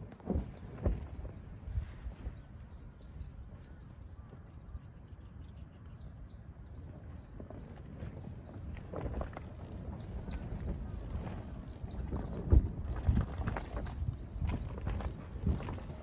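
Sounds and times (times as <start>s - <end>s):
small birds chirping: 0.0s - 16.0s
wind rumble on microphone: 0.0s - 16.0s.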